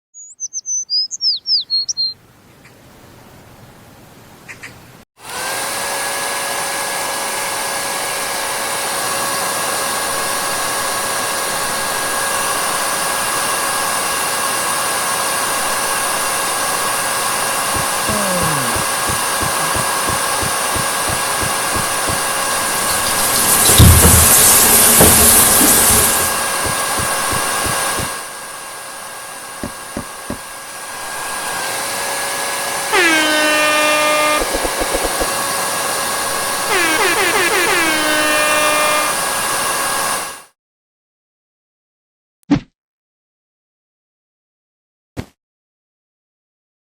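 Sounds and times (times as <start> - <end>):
birds chirping: 0.2 - 2.8
hair dryer blowing: 5.2 - 40.4.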